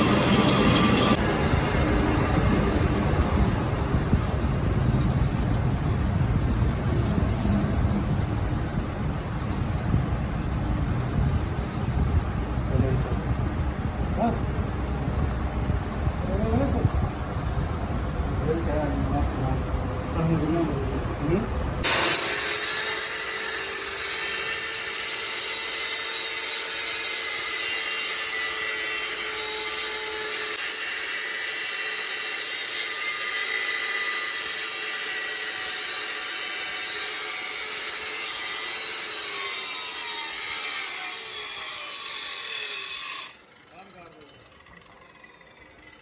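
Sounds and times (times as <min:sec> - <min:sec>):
power tool grinding steel: 0:00.0 - 0:03.2, 0:20.2 - 0:46.0.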